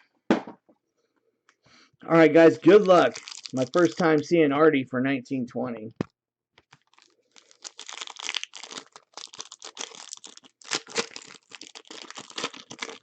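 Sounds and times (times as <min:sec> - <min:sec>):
plastic wrapper crinkling: 0:02.4 - 0:04.3, 0:06.6 - 0:13.0.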